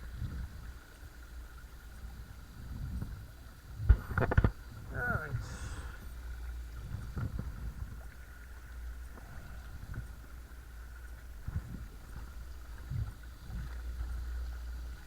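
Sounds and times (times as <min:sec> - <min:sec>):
low rumble of water and wind: 0:00.0 - 0:15.0.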